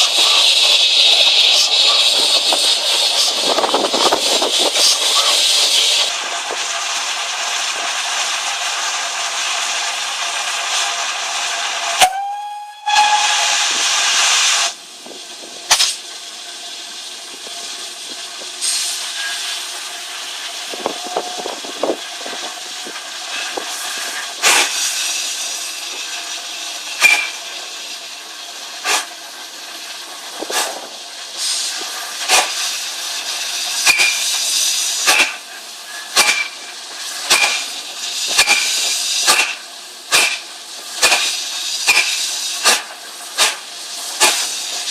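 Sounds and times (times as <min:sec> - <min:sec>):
loud burst of steam hiss: 0:00.0 - 0:44.9
steam locomotive hissing: 0:00.0 - 0:44.9
steam whistle blast: 0:12.0 - 0:13.9.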